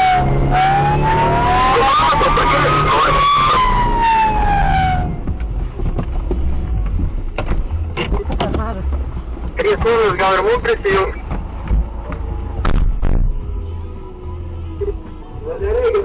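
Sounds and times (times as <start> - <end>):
police car siren wailing: 0.0 - 5.4
vehicle engine and road noise: 0.0 - 16.0.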